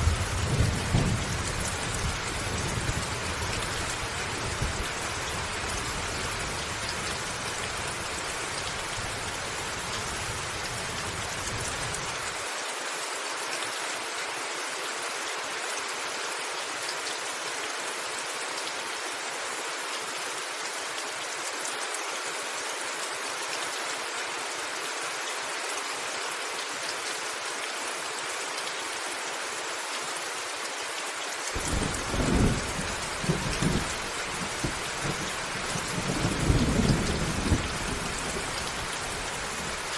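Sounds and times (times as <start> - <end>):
rain falling on a roof: 0.0 - 39.9
thunder rumbling: 31.6 - 39.2.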